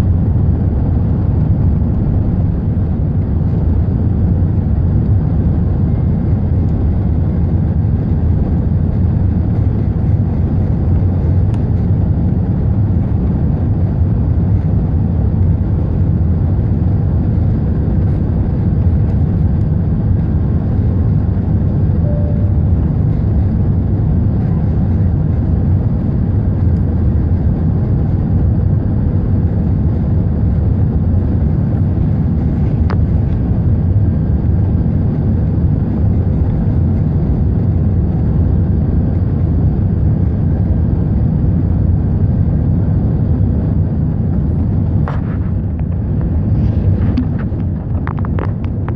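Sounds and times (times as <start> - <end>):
jet engines rumbling on take-off: 0.0 - 48.9
short faint tone: 22.0 - 22.8.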